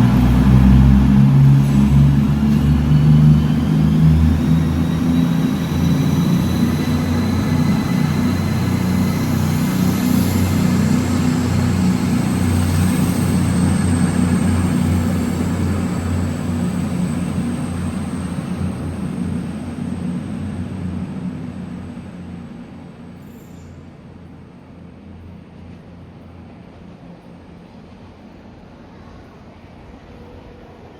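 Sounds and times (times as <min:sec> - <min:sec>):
thin high whine: 0:00.0 - 0:23.9
train engine rumble: 0:00.0 - 0:30.9.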